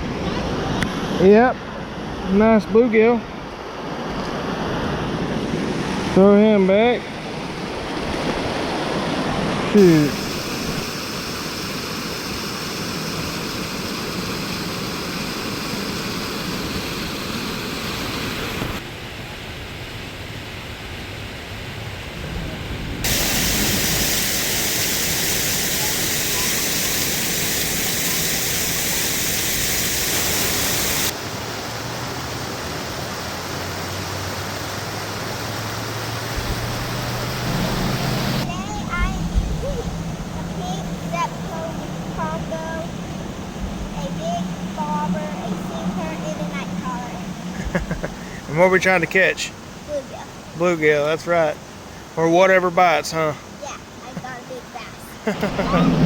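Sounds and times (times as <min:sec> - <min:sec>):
fast river water rushing: 0:03.3 - 0:19.1, 0:30.3 - 0:39.2, 0:40.0 - 0:56.0.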